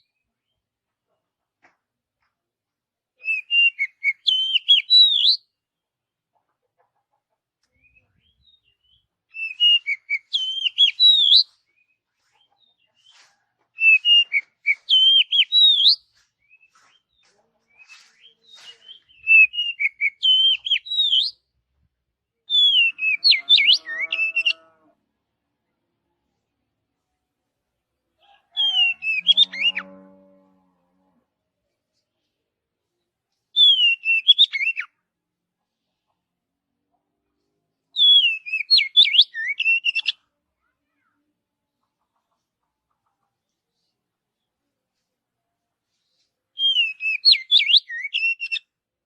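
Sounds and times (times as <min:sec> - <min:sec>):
bird singing whistled phrases: 0:03.2 - 0:05.4, 0:08.2 - 0:11.5, 0:17.8 - 0:21.4, 0:22.5 - 0:24.6, 0:33.6 - 0:34.9, 0:38.0 - 0:40.2, 0:46.6 - 0:48.6.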